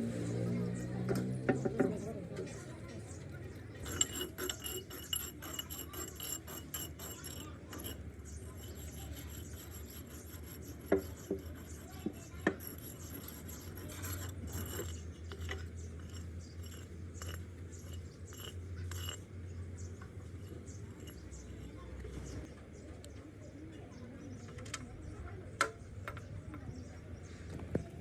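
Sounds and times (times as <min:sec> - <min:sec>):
steady low hum: 0:03.6 - 0:22.5
scraping and rubbing: 0:03.7 - 0:22.5.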